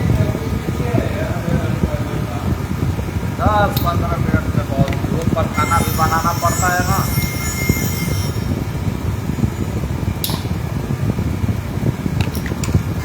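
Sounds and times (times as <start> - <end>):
loud machine rumble: 5.2 - 12.1.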